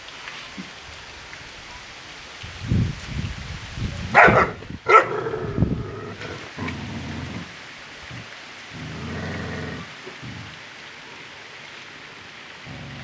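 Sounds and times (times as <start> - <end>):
dog barking: 4.1 - 5.5.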